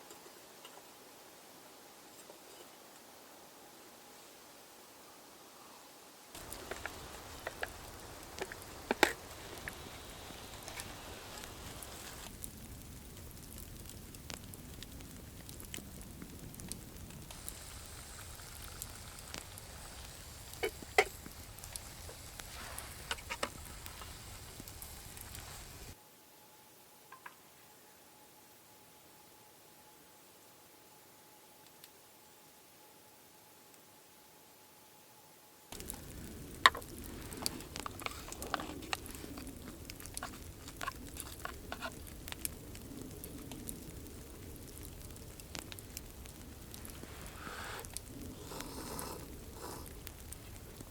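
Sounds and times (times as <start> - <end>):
campfire crackling: 6.3 - 26.0, 35.7 - 50.9
low rush of flame: 6.3 - 26.0, 35.7 - 50.9
sharp fire pops: 6.4 - 26.0, 35.7 - 50.9.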